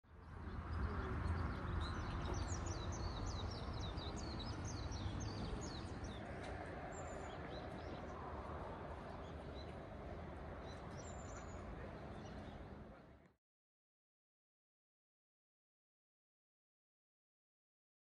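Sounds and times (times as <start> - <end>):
small birds chirping: 0.2 - 6.2.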